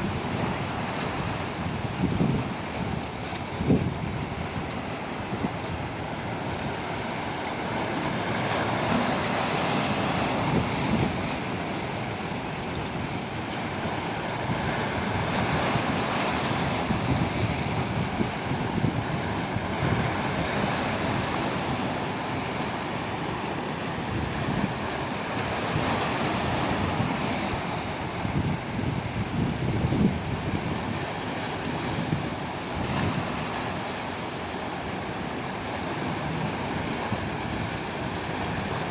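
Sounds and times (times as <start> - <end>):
sea waves washing ashore: 0.0 - 38.9
wind rumbling on microphone: 0.0 - 38.9.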